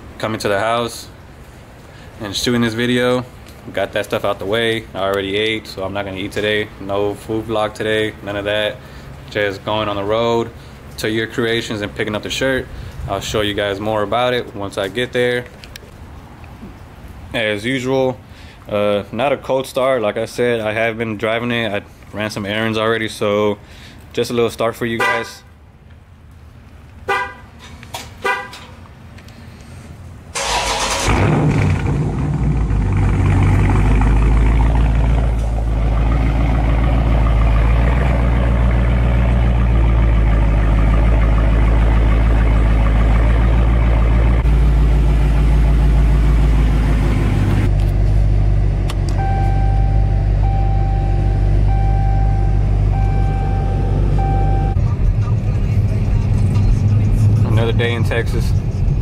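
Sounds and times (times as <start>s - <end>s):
car engine starting and idling: 27.6s - 59.0s
warning chime beeping: 49.2s - 54.8s.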